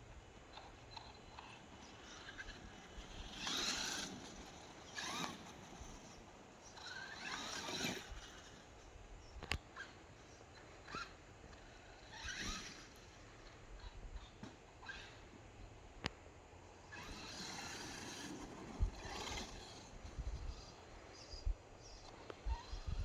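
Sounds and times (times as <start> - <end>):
tyres scrabbling on dirt: 0.5 - 8.9, 16.8 - 21.2
electric motor whine: 0.5 - 15.3, 16.8 - 23.0.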